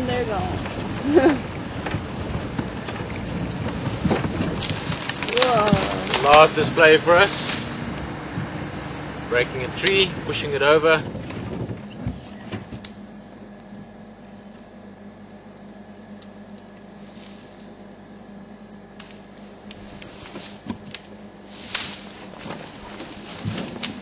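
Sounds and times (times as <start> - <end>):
steady low hum: 0.0 - 24.0
branches snapping and cracking: 0.6 - 9.1, 19.0 - 24.0.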